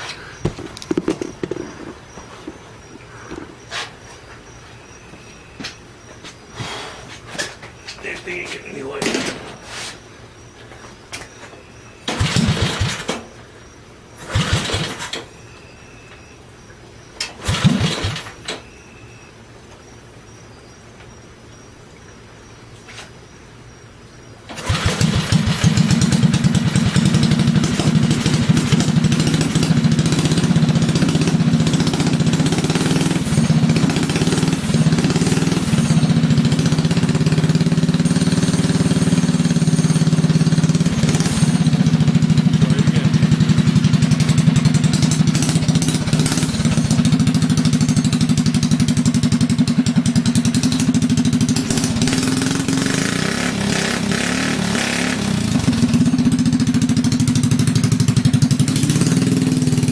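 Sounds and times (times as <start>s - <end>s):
small motorbike engine running: 0.0s - 1.9s, 12.0s - 13.2s, 14.2s - 15.3s, 17.3s - 18.6s, 24.5s - 59.9s.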